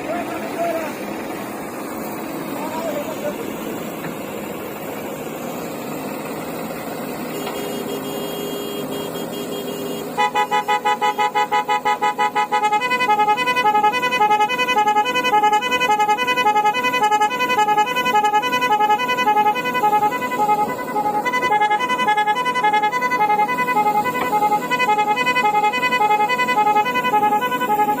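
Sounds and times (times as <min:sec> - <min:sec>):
vehicle engine running: 0:00.0 - 0:28.0
electronic musical horn beeping: 0:07.2 - 0:28.0.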